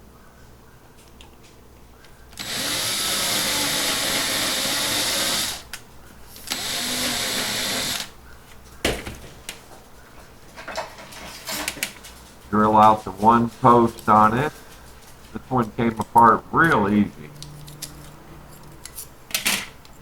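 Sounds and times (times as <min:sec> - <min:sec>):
power drill drilling: 0:02.4 - 0:05.7, 0:06.4 - 0:08.1.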